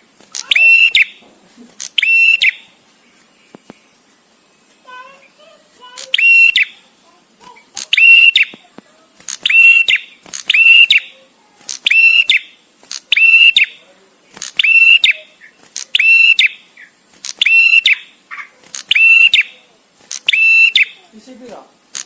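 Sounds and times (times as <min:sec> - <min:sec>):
bird calling sharply: 0:00.3 - 0:01.2, 0:01.8 - 0:02.8, 0:04.8 - 0:06.8, 0:07.5 - 0:08.7, 0:09.3 - 0:13.8, 0:14.4 - 0:21.1.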